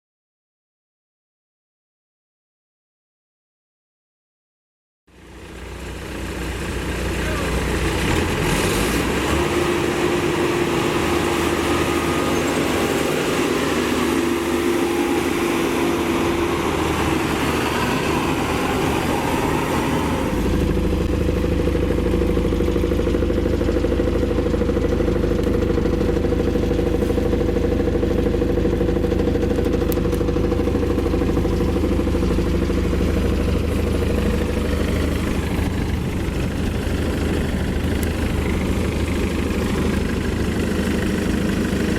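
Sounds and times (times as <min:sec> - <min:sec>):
deep engine hum: 0:05.1 - 0:41.9
harvester engine running: 0:05.2 - 0:41.9.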